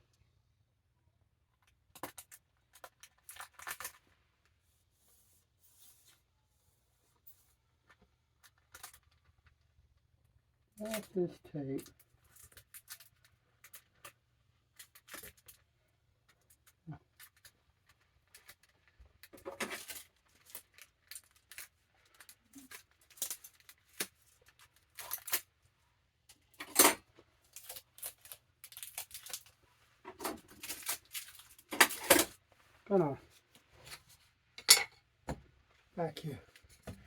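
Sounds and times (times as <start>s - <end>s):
tape ripping and rustling: 19.6s - 25.5s, 27.5s - 29.5s, 30.2s - 32.2s.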